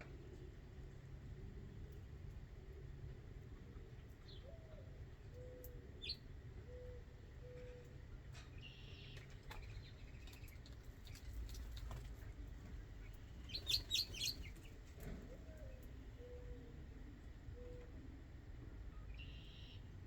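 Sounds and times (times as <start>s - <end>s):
soft low bird call: 18.9s - 19.9s.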